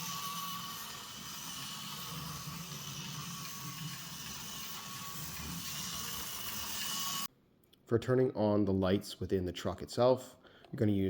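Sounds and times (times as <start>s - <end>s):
small electric motor and gears whirring: 0.0s - 7.3s.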